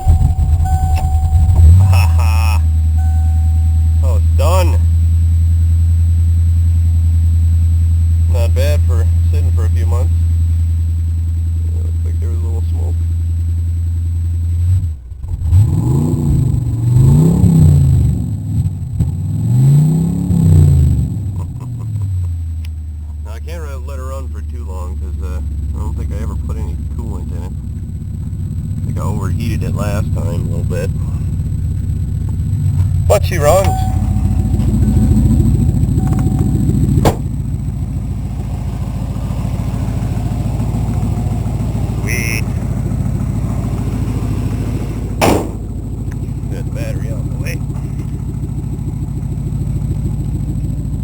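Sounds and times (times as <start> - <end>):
car engine idling and revving: 0.0 - 51.0
sharp engine knock: 31.4 - 46.4.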